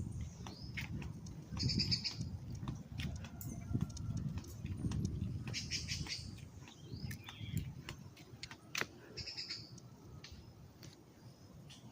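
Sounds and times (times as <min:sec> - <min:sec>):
small birds trilling: 0:00.1 - 0:07.8.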